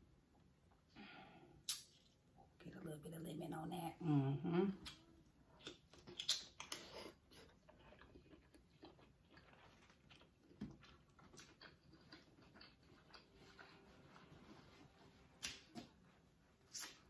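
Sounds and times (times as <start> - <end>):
wet chewing with mouth clicks: 4.8 - 14.3, 16.6 - 17.0.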